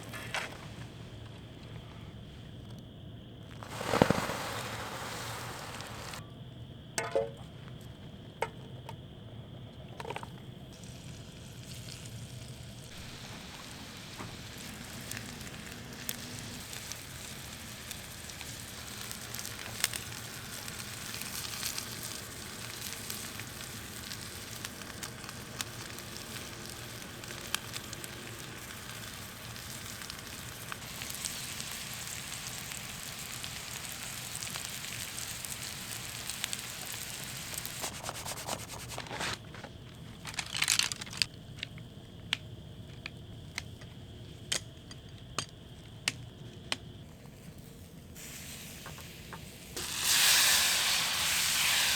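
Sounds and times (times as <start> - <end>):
food sizzling in a pan: 3.6 - 6.2, 10.8 - 39.0, 48.2 - 51.9.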